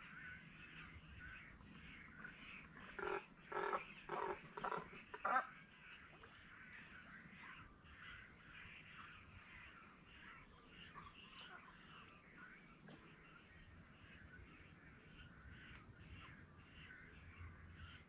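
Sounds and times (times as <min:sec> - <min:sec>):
harsh crow-like bird calls: 0:02.7 - 0:05.6.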